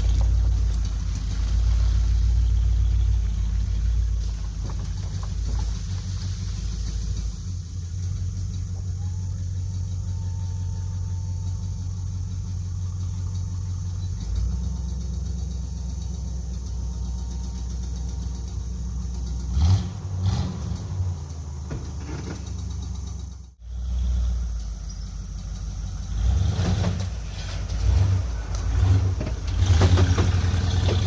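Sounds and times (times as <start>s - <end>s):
engine rev with clatter: 0.0s - 31.0s
vehicle engine running: 0.0s - 31.0s.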